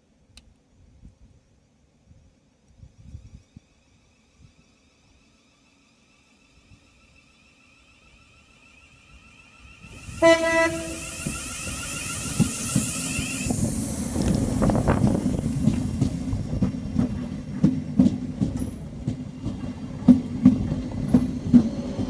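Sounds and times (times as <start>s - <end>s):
train rumbling past: 6.1s - 22.0s
train horn blast: 10.0s - 11.8s.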